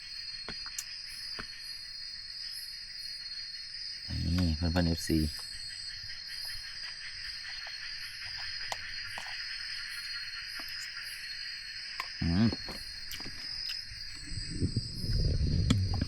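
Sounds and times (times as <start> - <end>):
jungle insects droning: 0.0 - 16.0.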